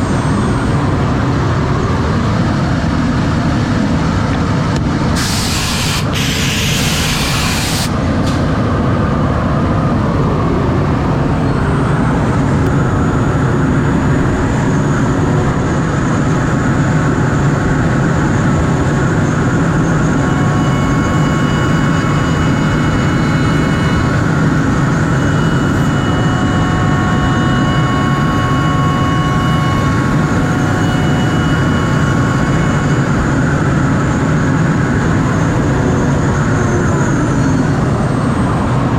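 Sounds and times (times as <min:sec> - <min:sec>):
high whining tones: 0:00.0 - 0:38.9
short hissing burst: 0:05.2 - 0:08.4
router milling wood: 0:20.1 - 0:33.5.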